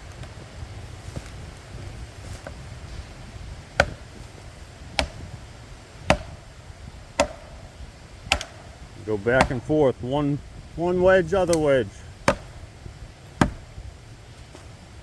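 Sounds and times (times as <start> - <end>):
hammer striking plastic wedges: 5.0 - 5.3, 6.1 - 6.4, 7.2 - 7.6, 8.3 - 8.7, 9.3 - 9.7, 11.4 - 12.6, 13.4 - 13.7.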